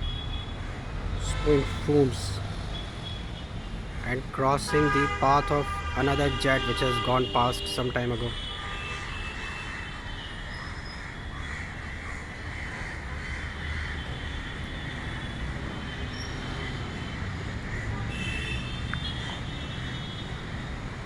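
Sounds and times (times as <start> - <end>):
crows cawing: 10.8 - 14.6.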